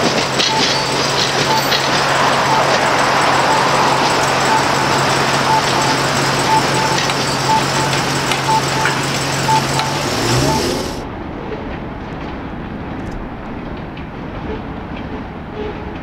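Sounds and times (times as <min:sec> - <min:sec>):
crossing bell ringing: 0:00.0 - 0:11.0
low engine drone: 0:00.0 - 0:11.1
train rolling past: 0:00.0 - 0:16.0.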